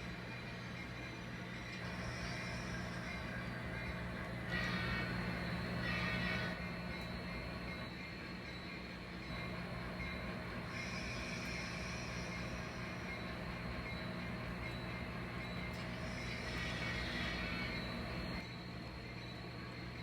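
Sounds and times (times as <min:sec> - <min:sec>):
model train humming: 0:00.0 - 0:19.3
high hiss: 0:10.0 - 0:14.9.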